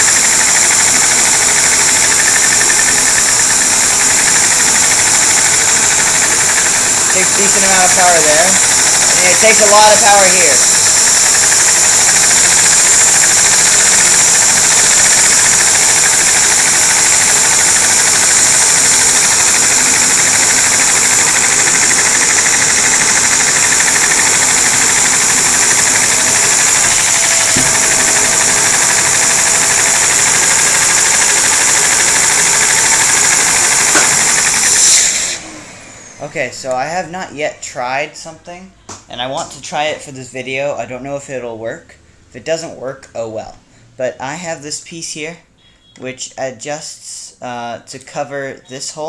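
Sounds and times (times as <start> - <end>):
vacuum cleaner motor whining: 0.0 - 36.3.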